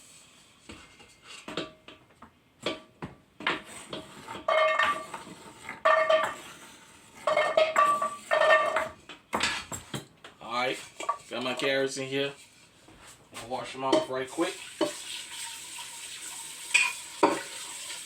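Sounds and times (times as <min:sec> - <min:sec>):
carrots clattering into metal pot: 0:07.3 - 0:10.0.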